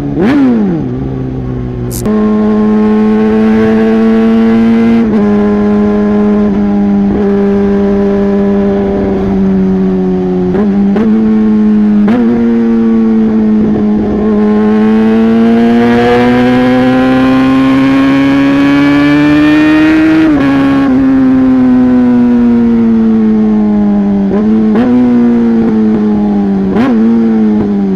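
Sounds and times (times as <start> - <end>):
motorcycle engine revving: 1.8 - 19.6.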